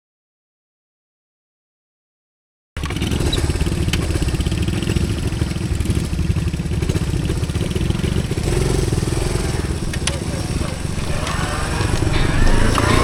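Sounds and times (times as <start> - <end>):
motorbike engine running: 2.8 - 13.0.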